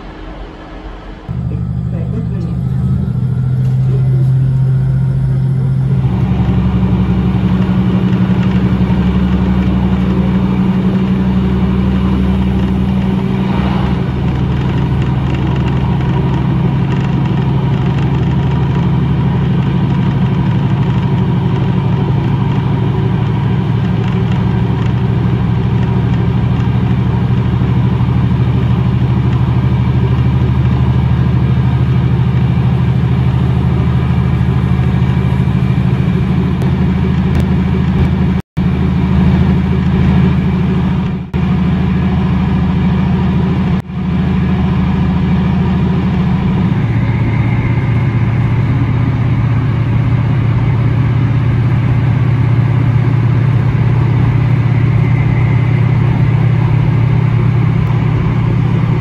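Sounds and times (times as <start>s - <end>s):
train interior rumble: 0.0s - 59.0s.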